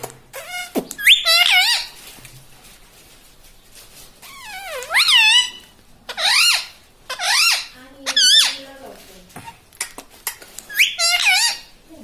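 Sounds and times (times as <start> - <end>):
parakeet warbling calls: 0.4 - 2.0, 4.3 - 8.7, 10.7 - 11.8.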